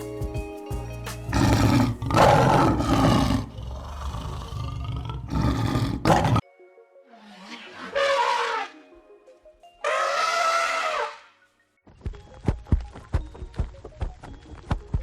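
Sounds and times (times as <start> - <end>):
background music: 0.0 - 15.0
big cat roaring: 1.3 - 6.4, 7.2 - 8.7.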